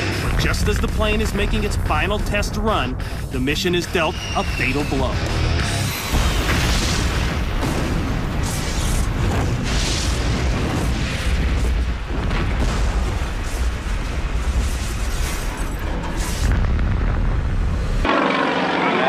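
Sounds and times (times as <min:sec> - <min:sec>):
aircraft crashing and exploding: 0:05.9 - 0:19.0.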